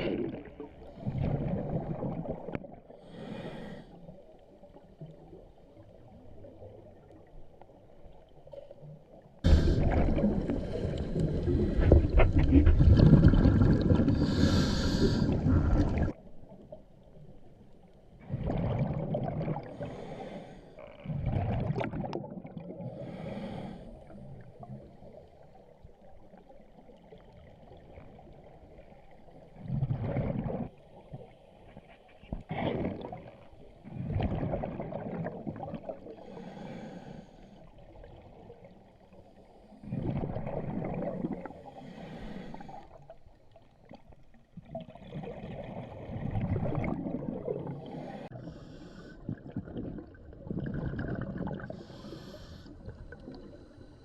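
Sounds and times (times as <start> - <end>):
water gurgling and sloshing: 0.0 - 54.0
heavy breathing through a snorkel: 3.0 - 4.0, 14.0 - 16.0, 19.7 - 20.8, 23.0 - 24.0, 36.2 - 37.6, 41.6 - 42.9, 51.7 - 52.8.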